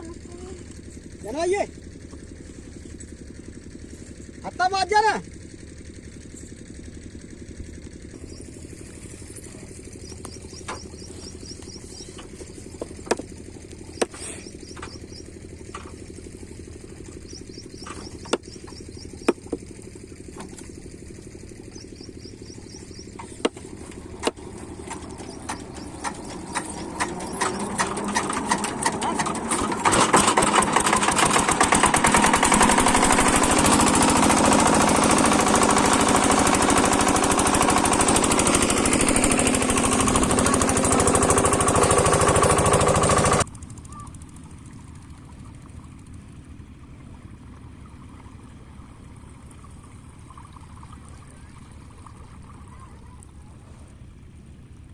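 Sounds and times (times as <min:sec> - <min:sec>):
diesel water pump engine running: 0:00.0 - 0:54.9
sharp engine knocks: 0:08.1 - 0:44.0.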